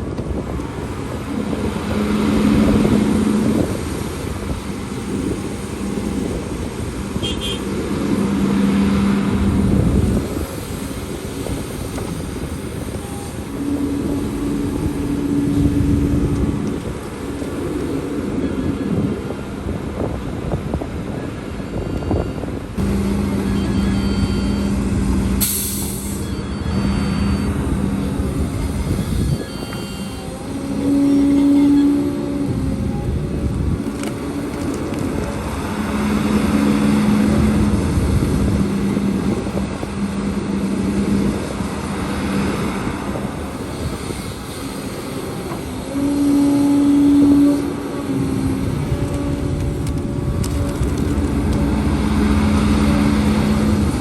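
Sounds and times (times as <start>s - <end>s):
heavy diesel engine revving: 0.7s - 17.5s, 22.8s - 54.0s
air hiss: 25.4s - 26.2s.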